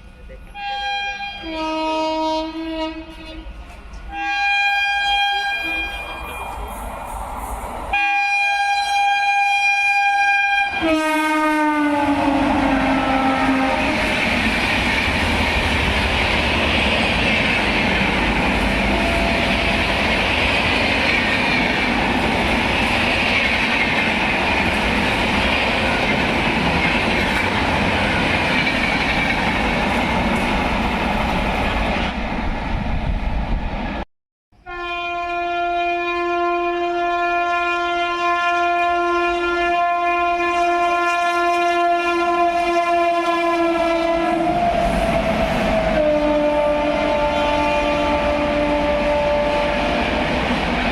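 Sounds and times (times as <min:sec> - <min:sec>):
train horn dropping in pitch: 0:00.5 - 0:06.2, 0:07.9 - 0:14.2, 0:18.8 - 0:20.0, 0:34.6 - 0:44.7, 0:45.7 - 0:50.2
electric locomotive horn: 0:00.5 - 0:06.4, 0:07.9 - 0:14.4, 0:18.4 - 0:20.4, 0:34.6 - 0:44.9, 0:45.6 - 0:50.4
wheels rumbling with rail clatter: 0:12.9 - 0:33.9.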